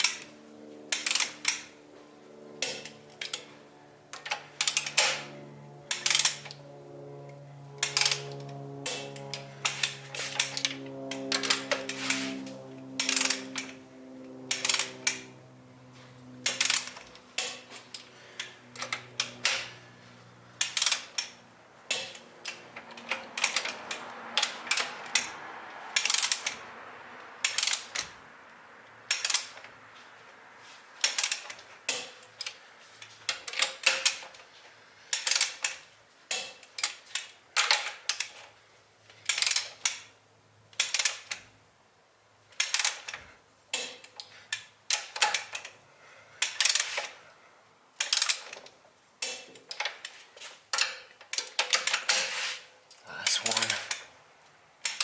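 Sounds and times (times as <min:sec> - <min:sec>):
ratcheting torque wrench clicking: 0:00.9 - 0:01.7, 0:02.6 - 0:03.5, 0:04.1 - 0:06.6, 0:07.8 - 0:12.3, 0:13.0 - 0:13.8, 0:14.5 - 0:15.3, 0:16.4 - 0:19.8, 0:20.6 - 0:26.6, 0:27.4 - 0:28.1, 0:29.1 - 0:29.7, 0:31.0 - 0:34.4, 0:35.1 - 0:41.5, 0:42.5 - 0:45.8, 0:46.4 - 0:47.2, 0:48.0 - 0:54.1.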